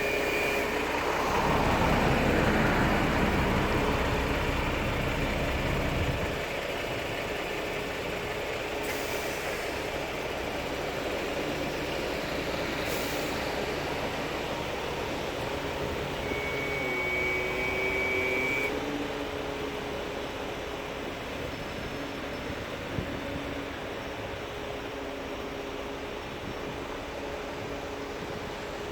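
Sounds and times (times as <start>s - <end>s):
tram rumble with drive hum: 0.0s - 28.9s
thin high whine: 16.2s - 18.7s.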